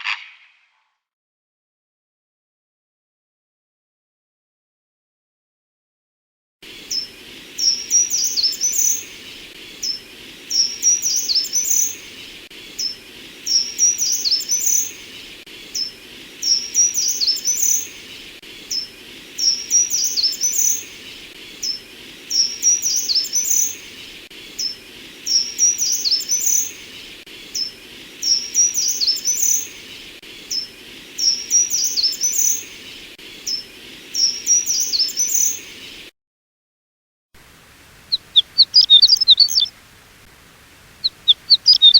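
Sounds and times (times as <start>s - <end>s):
steady background hiss: 6.6s - 36.1s, 37.4s - 41.9s
songbird singing: 6.8s - 36.1s, 37.8s - 39.8s, 40.6s - 41.9s.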